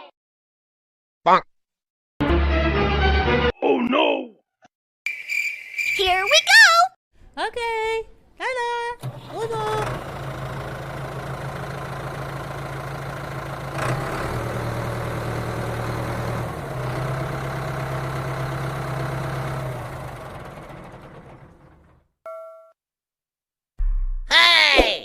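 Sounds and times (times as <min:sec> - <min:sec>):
engine idling: 0:09.0 - 0:22.0.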